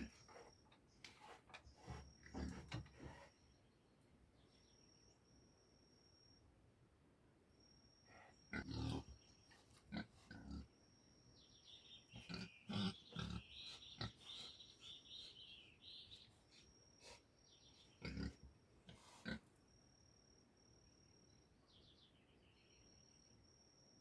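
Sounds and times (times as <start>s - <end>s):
birds chirping: 0.0s - 4.9s, 11.4s - 18.5s
pig grunting: 1.8s - 3.3s, 8.5s - 9.2s, 9.9s - 10.7s, 12.2s - 15.0s, 17.8s - 19.5s.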